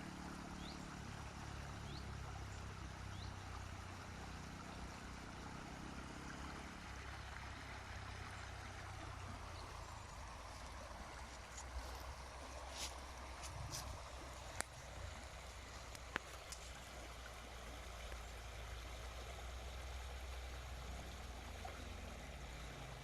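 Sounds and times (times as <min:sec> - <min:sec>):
creek burbling and trickling: 0:00.0 - 0:23.0.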